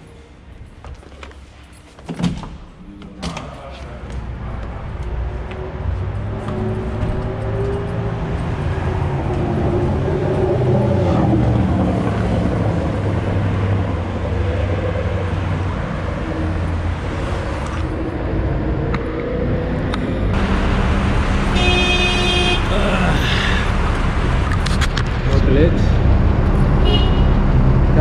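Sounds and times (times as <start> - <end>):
road and traffic noise: 0.0 - 28.0.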